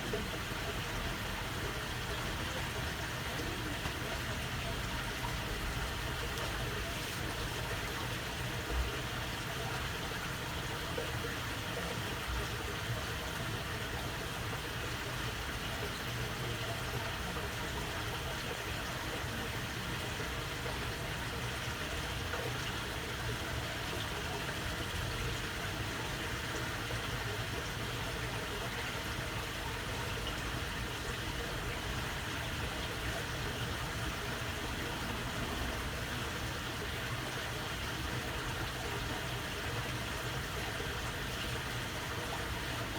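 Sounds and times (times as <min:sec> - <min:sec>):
water babbling through waterway: 0:00.0 - 0:42.9.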